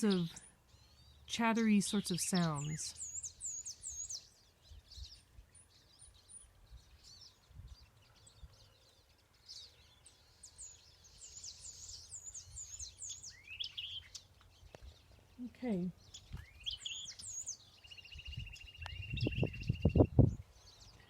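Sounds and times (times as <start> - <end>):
faint birds chirping and whistling: 0.0 - 21.0.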